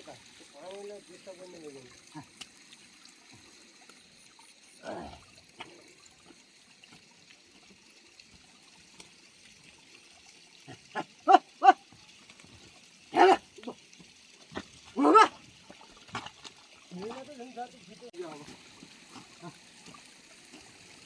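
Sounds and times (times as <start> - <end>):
trickle of running water: 0.0 - 21.0
animal calls: 10.7 - 11.8.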